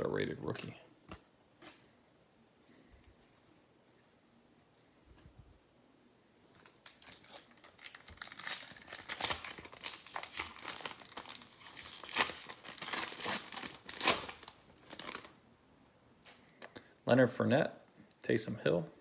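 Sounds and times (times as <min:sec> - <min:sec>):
wrapper tearing and crinkling: 0:06.6 - 0:15.4.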